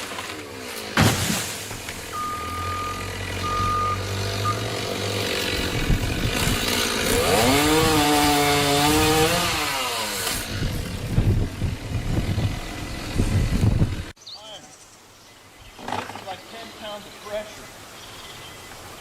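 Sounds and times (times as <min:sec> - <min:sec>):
chainsaw revving: 0:00.0 - 0:14.2.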